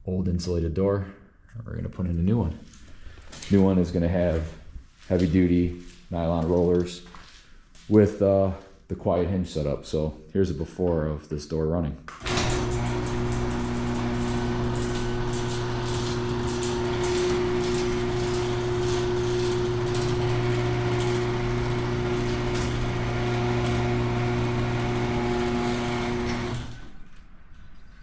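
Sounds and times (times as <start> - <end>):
door clattering and clicking: 12.2 - 27.1
garage door opener motor hum: 12.2 - 27.8.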